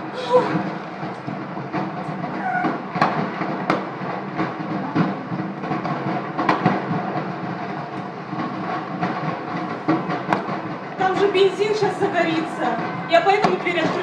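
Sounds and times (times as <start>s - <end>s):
large fire rumbling: 0.0s - 14.0s
sharp cracks and pops: 7.8s - 11.0s.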